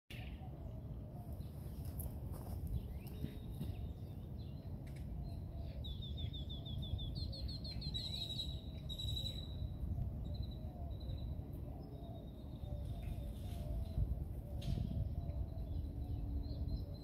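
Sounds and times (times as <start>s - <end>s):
songbird singing: 0.1s - 17.0s
steady low rumble: 0.1s - 17.0s.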